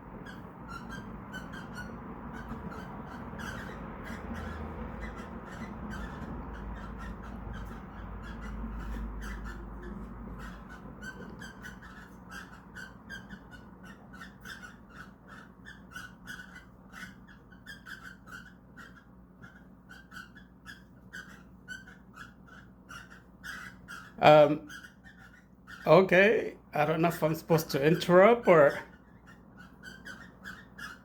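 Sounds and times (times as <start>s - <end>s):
cockatiel chirping: 0.1s - 26.2s, 26.8s - 31.0s.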